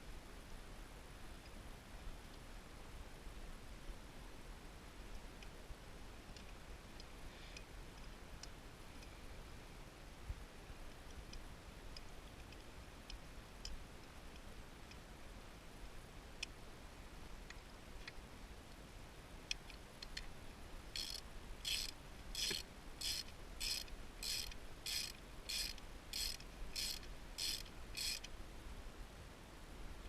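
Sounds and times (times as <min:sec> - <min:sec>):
ratchet wrench clicking: 0:21.0 - 0:28.3.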